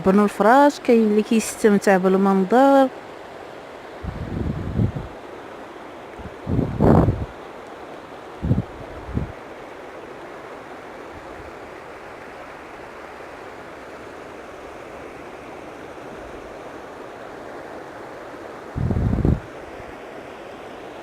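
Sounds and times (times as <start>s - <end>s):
river water flowing: 0.0s - 21.0s
wind buffeting microphone: 4.0s - 5.2s, 6.2s - 7.4s, 8.4s - 9.4s, 18.7s - 19.6s.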